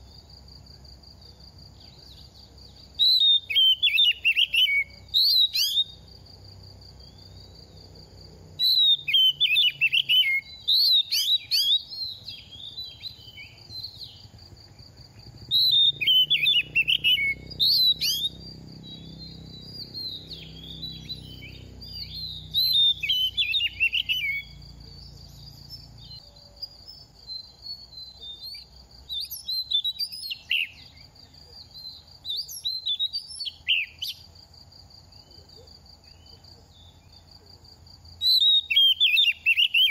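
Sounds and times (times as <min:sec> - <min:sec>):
bird singing whistled phrases: 0:02.9 - 0:06.0, 0:08.6 - 0:14.3, 0:15.5 - 0:26.2, 0:26.9 - 0:34.2, 0:38.2 - 0:39.9.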